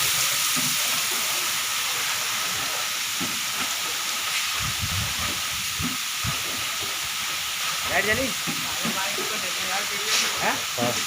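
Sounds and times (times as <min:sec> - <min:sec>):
water spraying down: 0:00.0 - 0:11.0.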